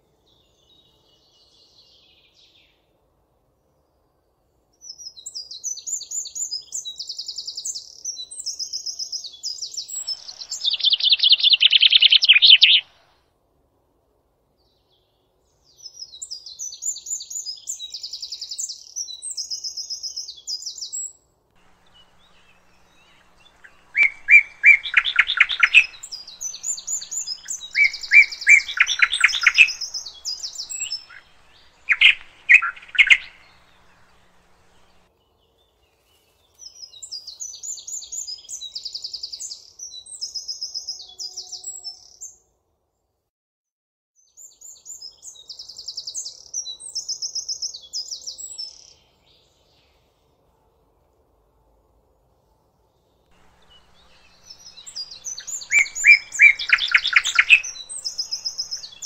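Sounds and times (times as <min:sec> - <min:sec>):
songbird chirping trills: 0:04.9 - 0:13.1, 0:21.6 - 0:42.4, 0:53.3 - 0:59.0
songbird rattling trills: 0:21.7 - 0:35.0, 0:53.5 - 0:59.0.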